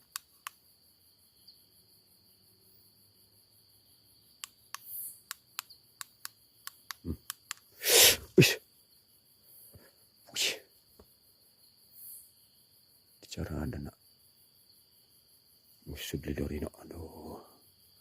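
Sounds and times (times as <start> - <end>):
sharp clicks: 0.0 - 0.6, 4.4 - 7.7
crickets chirring: 0.0 - 18.0.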